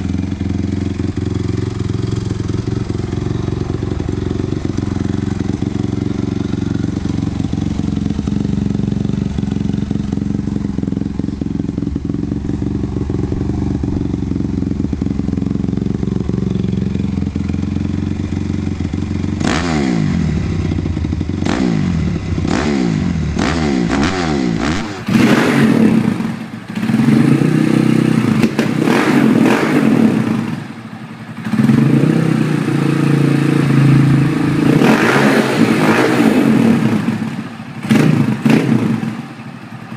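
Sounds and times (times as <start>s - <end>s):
dirt bike engine revving: 0.0s - 30.7s, 31.3s - 39.3s.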